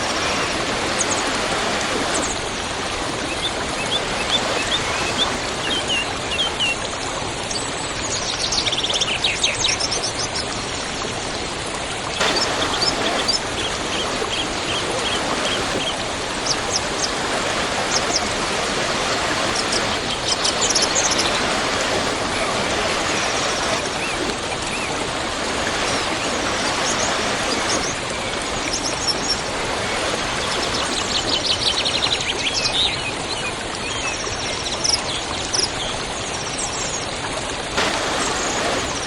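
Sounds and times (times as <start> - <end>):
small birds chirping: 0.0 - 6.9, 12.2 - 33.6
waterfall rushing: 0.0 - 7.9, 10.8 - 32.5, 37.7 - 39.0.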